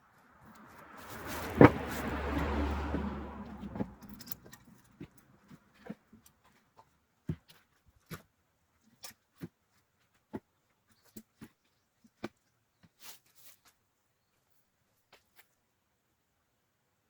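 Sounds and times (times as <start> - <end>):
engine rumble: 0.1 - 6.4.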